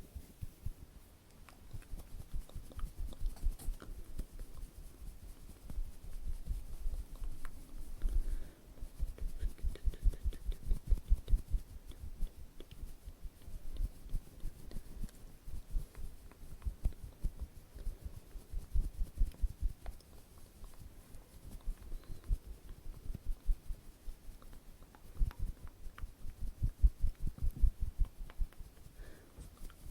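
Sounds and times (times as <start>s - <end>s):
soft tapping and brushing: 0.0s - 29.9s.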